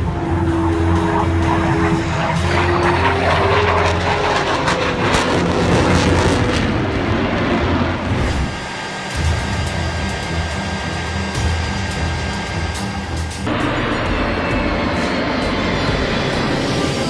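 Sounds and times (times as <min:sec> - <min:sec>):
aircraft engine noise: 0:00.0 - 0:17.0.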